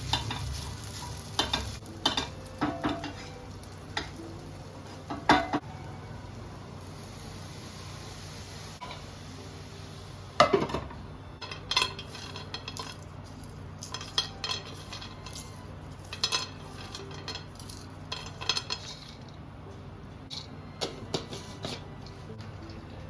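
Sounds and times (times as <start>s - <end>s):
utensils clinking against cookware: 0.0s - 4.3s, 11.4s - 19.4s.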